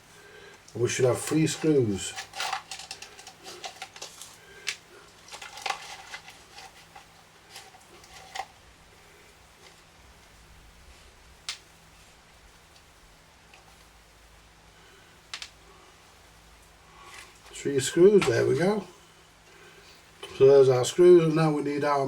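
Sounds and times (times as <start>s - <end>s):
small parts clicking and tapping: 0.5s - 8.6s, 15.3s - 15.6s.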